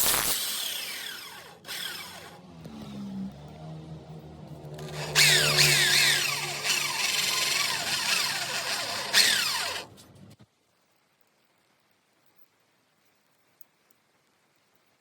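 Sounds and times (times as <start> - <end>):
power tool with falling whines: 0.0 - 3.3, 4.7 - 10.0.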